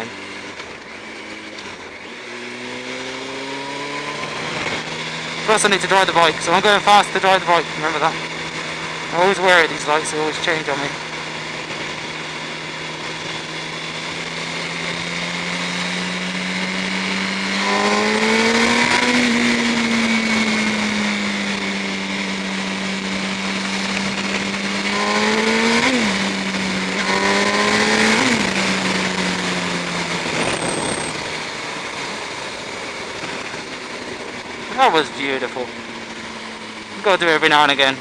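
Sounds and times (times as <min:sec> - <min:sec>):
motorcycle engine accelerating: 0:00.0 - 0:38.0
gear upshifts: 0:16.7 - 0:32.4.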